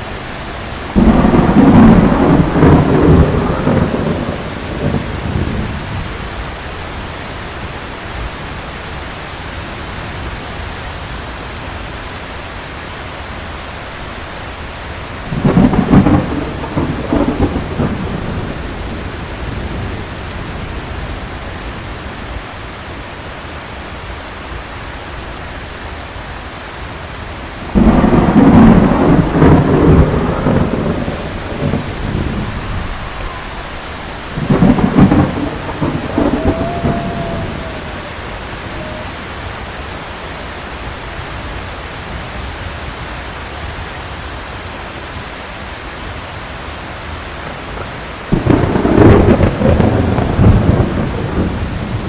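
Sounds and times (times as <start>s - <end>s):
rolling thunder: 0.0s - 7.1s, 15.0s - 22.4s, 27.6s - 41.5s, 47.4s - 52.0s
heavy rain: 0.0s - 52.0s.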